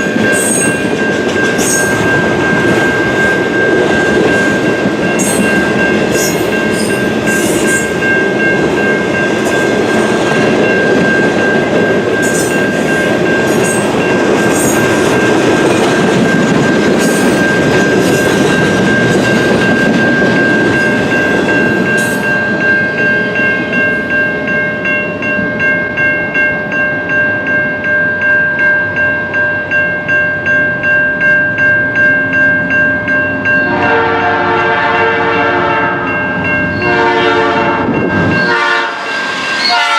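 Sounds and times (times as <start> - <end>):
train wheels clacking over rail joints: 0.0 - 22.2
crossing bell ringing: 0.0 - 39.9
freight train rumble: 0.0 - 39.9
locomotive horn: 33.7 - 36.2, 36.8 - 39.9.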